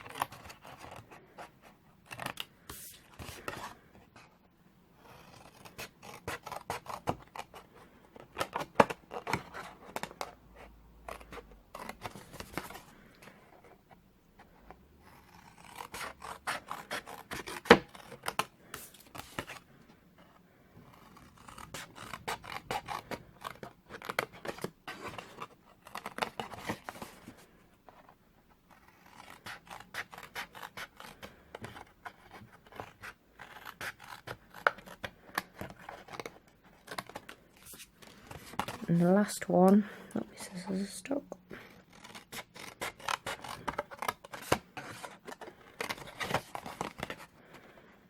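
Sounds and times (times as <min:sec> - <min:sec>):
scissors snipping cardstock: 0:15.1 - 0:18.5, 0:20.9 - 0:27.0, 0:41.7 - 0:47.2.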